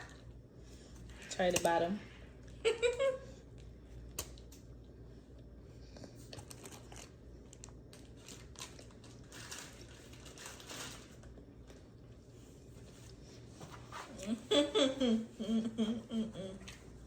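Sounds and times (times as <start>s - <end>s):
paper wrapper crinkling: 6.3s - 11.8s.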